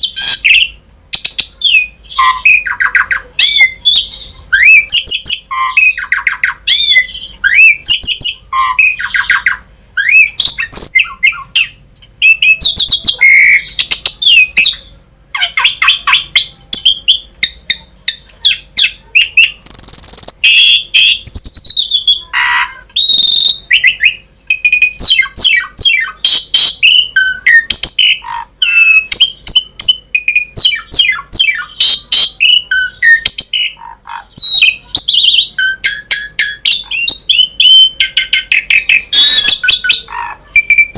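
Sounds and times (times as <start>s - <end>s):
starling singing: 0.0s - 40.9s.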